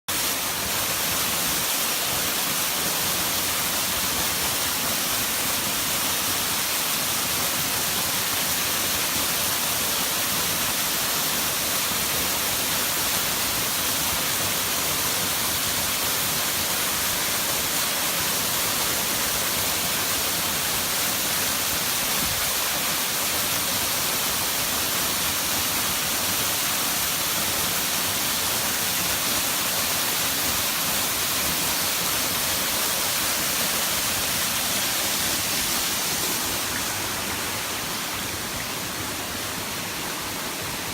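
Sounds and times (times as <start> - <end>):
waterfall pouring: 0.1 - 39.7.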